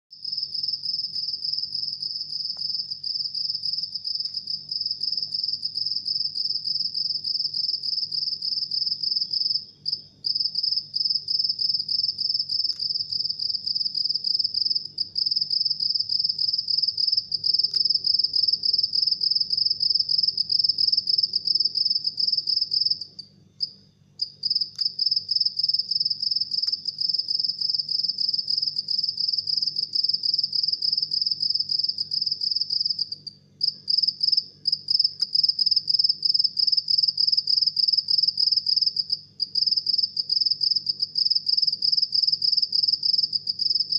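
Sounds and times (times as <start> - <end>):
cricket chirping: 0.2 - 43.9.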